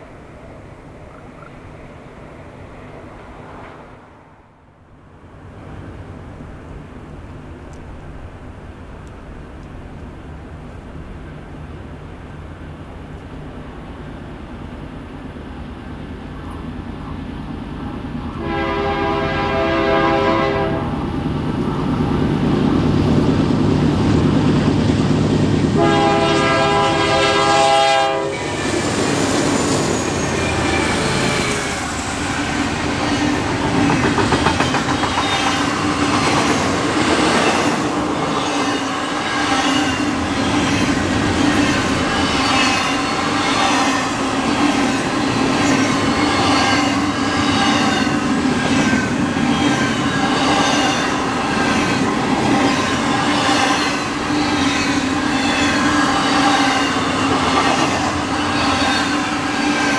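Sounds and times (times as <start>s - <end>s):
diesel locomotives rumbling: 5.0s - 59.9s
train wheels clicking over rail joints: 28.4s - 59.5s.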